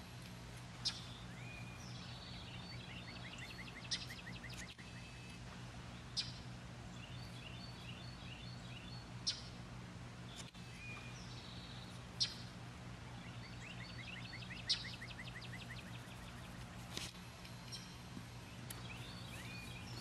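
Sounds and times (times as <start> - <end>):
steady low hum: 0.0 - 20.0
bird chirps: 13.1 - 16.6, 17.4 - 20.0.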